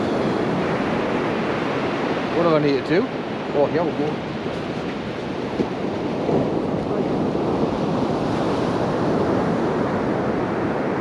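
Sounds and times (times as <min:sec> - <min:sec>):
waves breaking on beach: 0:00.0 - 0:11.0
wind on microphone: 0:00.0 - 0:11.0.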